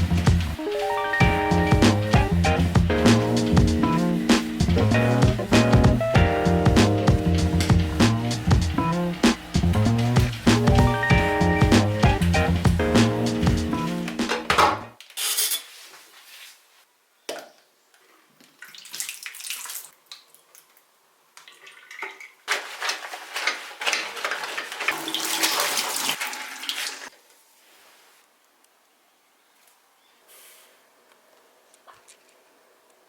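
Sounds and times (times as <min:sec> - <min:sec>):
clatter of items being rinsed: 0:21.4 - 0:27.1
tap water running into sink: 0:21.4 - 0:27.1.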